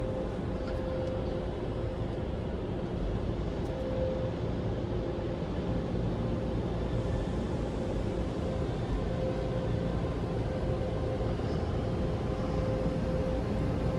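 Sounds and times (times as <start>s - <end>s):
faint machine whine: 0.0s - 13.9s.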